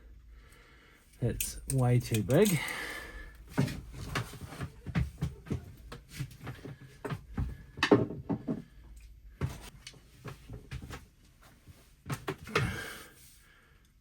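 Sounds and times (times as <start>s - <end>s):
metal clamps and tools clicking: 1.2s - 3.1s.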